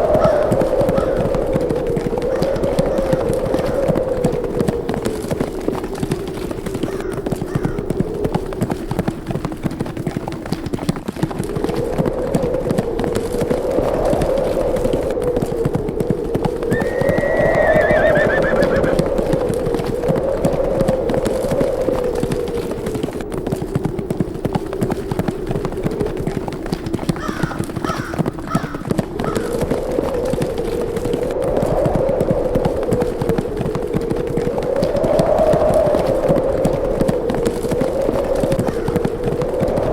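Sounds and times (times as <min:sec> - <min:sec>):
horses hoofbeats: 0:00.0 - 0:39.9
howling wind: 0:00.0 - 0:39.9
short calls: 0:16.7 - 0:19.0.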